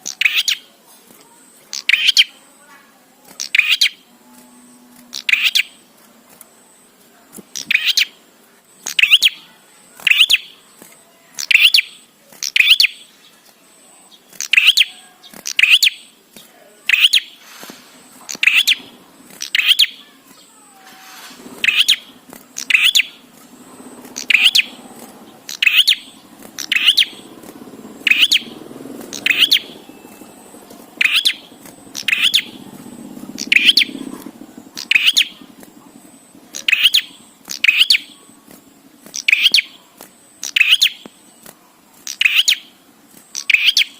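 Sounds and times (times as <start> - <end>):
bird chirping sharply: 0.0 - 0.7, 1.7 - 2.4, 3.4 - 4.0, 5.1 - 5.8, 7.6 - 8.2, 8.8 - 10.6, 11.4 - 13.1, 14.1 - 16.2, 16.9 - 23.3, 23.9 - 27.4, 28.0 - 35.5, 36.5 - 38.3, 39.1 - 39.8, 40.4 - 41.3, 42.1 - 42.7, 43.3 - 43.9
faint low hum: 0.0 - 43.9.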